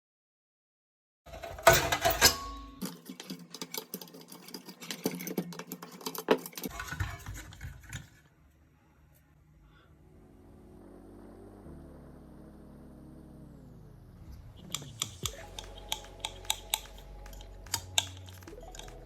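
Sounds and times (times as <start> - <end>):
fan clicking and rattling: 1.3 - 8.1, 14.7 - 19.0.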